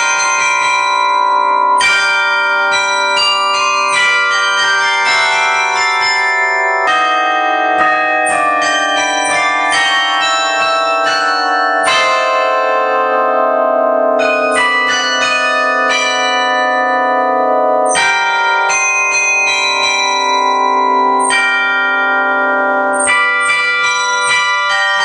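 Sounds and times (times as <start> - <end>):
carillon bells playing a melody: 0.0 - 25.0.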